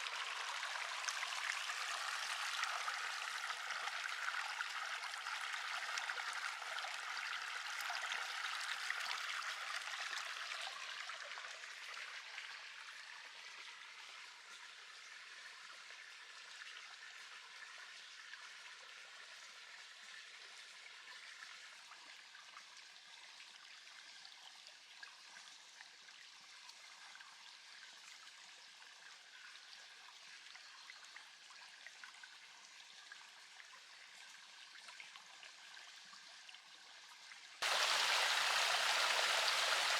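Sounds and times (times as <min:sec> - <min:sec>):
river water rushing: 0:37.6 - 0:39.9.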